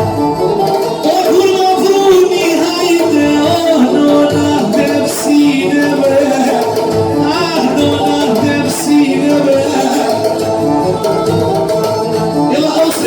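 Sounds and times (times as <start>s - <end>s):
melody over a low beat: 0.0s - 12.9s.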